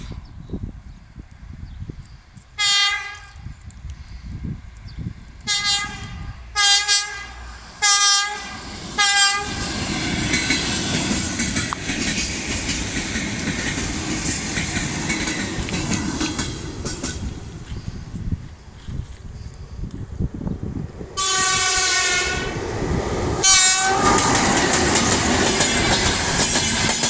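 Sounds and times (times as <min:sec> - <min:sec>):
train horn blasts: 0:02.6 - 0:03.4, 0:05.4 - 0:09.8, 0:21.2 - 0:22.6, 0:23.4 - 0:24.5
train rushing past: 0:04.2 - 0:27.0
wheels clattering over rail joints: 0:08.6 - 0:17.8, 0:23.8 - 0:27.0.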